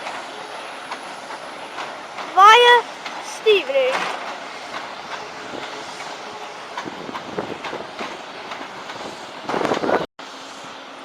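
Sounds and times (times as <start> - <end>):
train wheels clicking over rail joints: 0.0 - 10.1
rush of train noise: 0.0 - 11.0
train rumble: 0.0 - 11.0.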